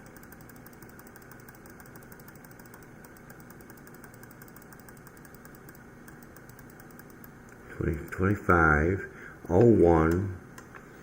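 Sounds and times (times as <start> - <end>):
fast high ticking: 0.0 - 8.5
computer cooling fans whirring: 0.0 - 11.0.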